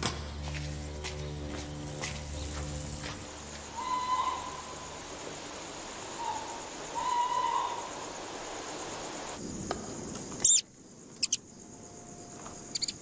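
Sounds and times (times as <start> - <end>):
night insects chirring: 1.2 - 13.0
owl hooting: 3.7 - 5.0, 6.1 - 8.1
sharp high squeak: 10.4 - 10.6, 12.7 - 13.0.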